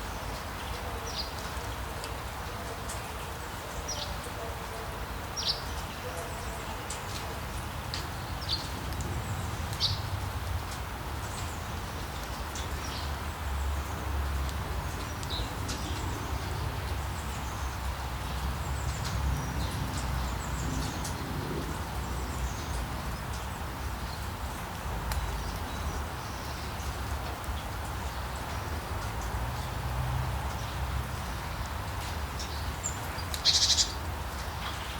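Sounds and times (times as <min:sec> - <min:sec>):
steady rain falling: 0:00.0 - 0:34.9
birds chirping: 0:32.4 - 0:34.0.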